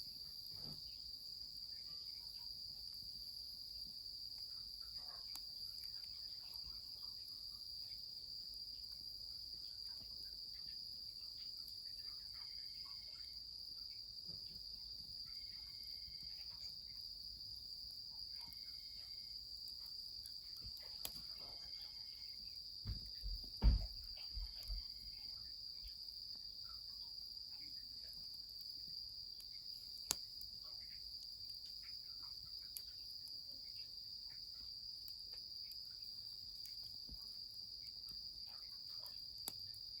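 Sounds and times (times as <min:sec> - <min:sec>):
night insects chorus: 0:00.0 - 0:40.0
wood fire crackles: 0:00.1 - 0:40.0
low thumps: 0:22.9 - 0:24.1.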